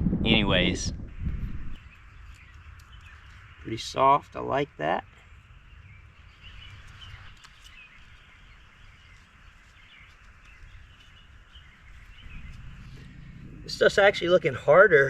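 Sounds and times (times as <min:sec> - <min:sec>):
low rumble: 0:00.0 - 0:03.5, 0:10.4 - 0:15.0
bird chirps: 0:01.2 - 0:03.9, 0:05.3 - 0:15.0.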